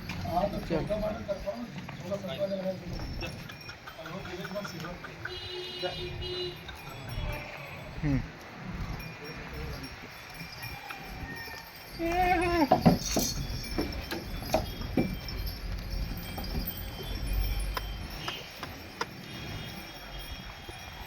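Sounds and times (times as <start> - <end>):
goat bleating: 7.1 - 8.0, 12.0 - 12.8.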